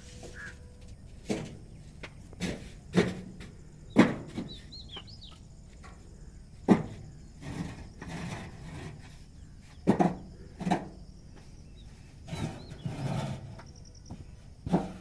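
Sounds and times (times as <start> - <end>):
bird chirping: 0.0 - 1.1, 3.9 - 5.5
bricks scraping and shuffling: 6.7 - 10.9, 12.2 - 13.7, 14.7 - 15.0.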